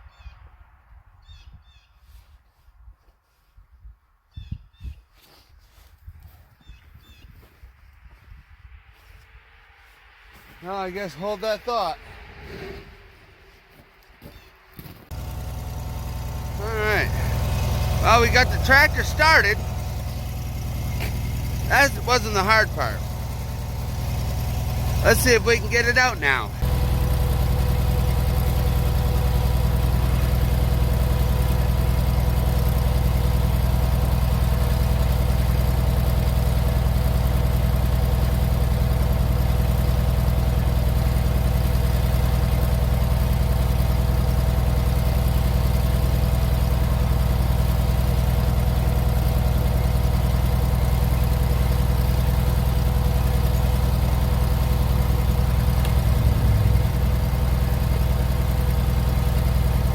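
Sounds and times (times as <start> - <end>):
tractor engine running: 9.8 - 59.9.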